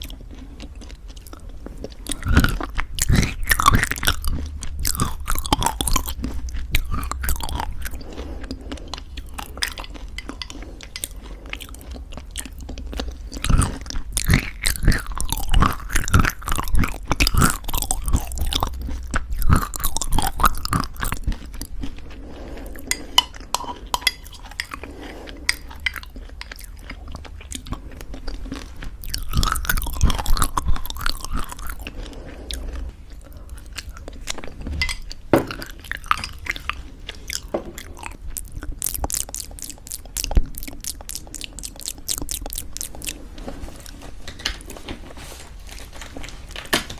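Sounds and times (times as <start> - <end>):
crunchy chewing: 0.0 - 46.8.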